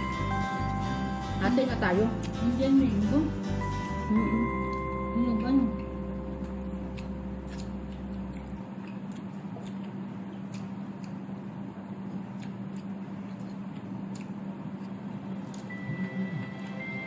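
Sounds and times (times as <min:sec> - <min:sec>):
steady low hum: 0:00.0 - 0:17.0
chewing crunchy mango: 0:05.8 - 0:16.8.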